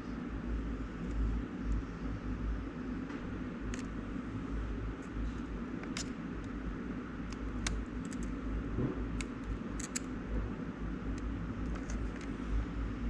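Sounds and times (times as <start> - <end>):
steady low hum: 0.0 - 13.0
metal probes clicking on board: 9.2 - 10.1.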